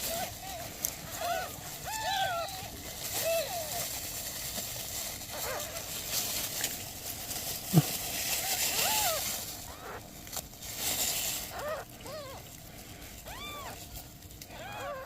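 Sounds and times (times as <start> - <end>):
kittens mewing: 0.0 - 3.9, 7.7 - 10.1, 11.4 - 12.6, 13.2 - 15.0.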